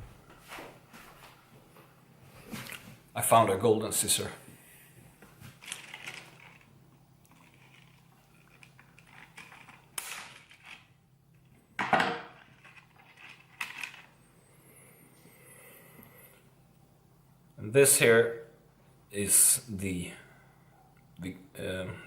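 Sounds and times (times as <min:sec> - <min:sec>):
plastic packaging crinkling: 0:05.4 - 0:10.9, 0:12.4 - 0:14.1.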